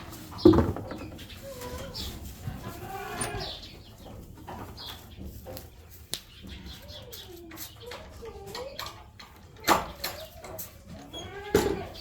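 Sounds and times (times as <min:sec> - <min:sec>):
birds chirping: 0:00.0 - 0:12.0
goats bleating: 0:10.9 - 0:12.0.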